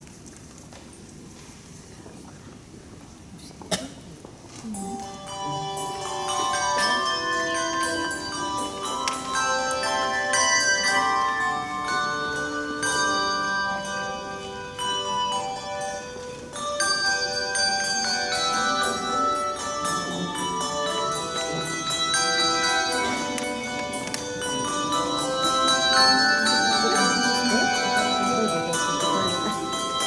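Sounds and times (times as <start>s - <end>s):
handbell choir playing: 4.8s - 30.0s.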